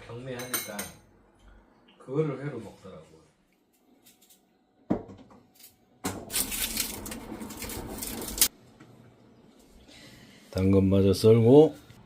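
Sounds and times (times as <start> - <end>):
kitchenware clattering: 0.2 - 1.1.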